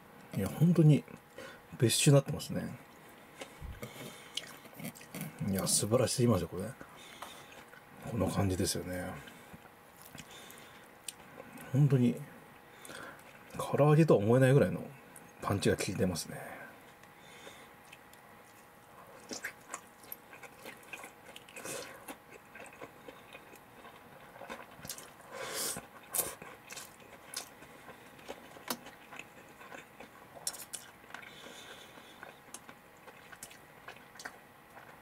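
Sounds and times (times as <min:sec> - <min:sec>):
person chewing food: 0:02.9 - 0:05.8, 0:06.8 - 0:08.0, 0:09.2 - 0:11.6, 0:16.9 - 0:35.0.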